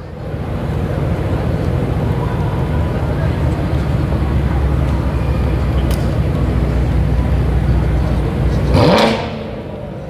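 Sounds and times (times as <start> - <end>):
sports car engine idling: 0.0 - 10.0
engine throttle blip: 4.2 - 9.7.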